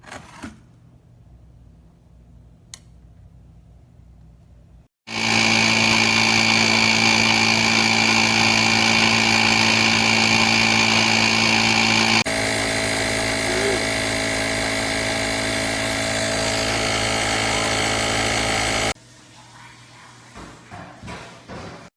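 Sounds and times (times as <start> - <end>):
air compressor humming and whining: 5.1 - 19.0.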